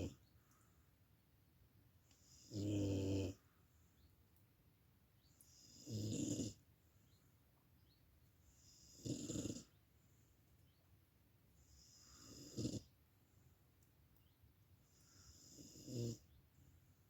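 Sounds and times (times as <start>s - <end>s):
dog snoring: 2.2s - 3.4s, 5.5s - 6.6s, 8.5s - 9.7s, 11.7s - 12.9s, 15.0s - 16.2s.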